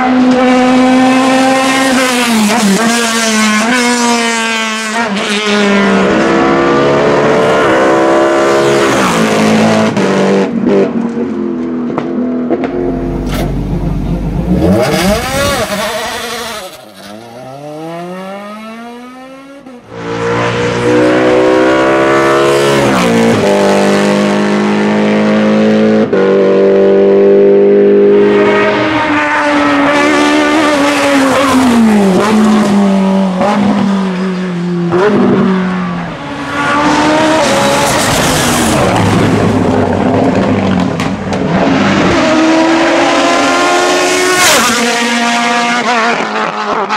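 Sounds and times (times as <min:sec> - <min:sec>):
race car engines at full throttle: 0:00.0 - 0:46.9.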